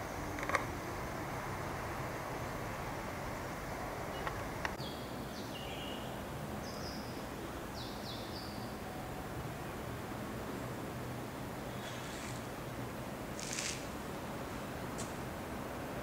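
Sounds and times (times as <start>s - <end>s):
outdoor background hiss: 0.0s - 16.0s
bird chirping: 4.1s - 8.9s.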